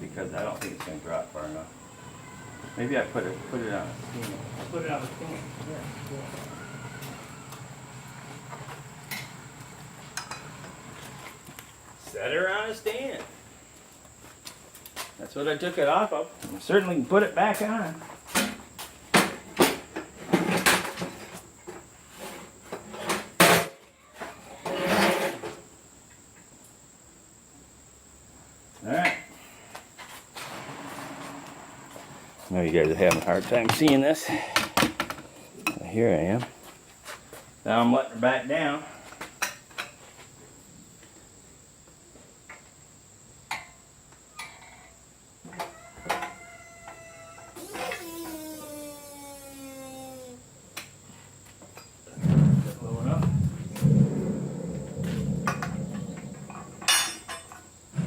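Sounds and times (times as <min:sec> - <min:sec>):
hoist creaking squeals: 0:01.4 - 0:09.5, 0:46.0 - 0:49.7
heavy electric motor scraping: 0:02.3 - 0:11.4, 0:30.4 - 0:32.4.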